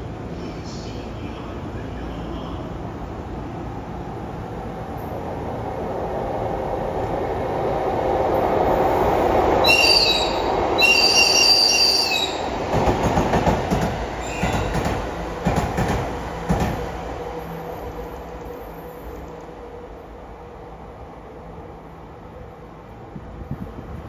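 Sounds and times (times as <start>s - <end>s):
train rumbling past: 0.0s - 24.0s
locomotive whistle blasts: 9.6s - 12.4s
wheels clacking over rail joints: 12.7s - 16.8s.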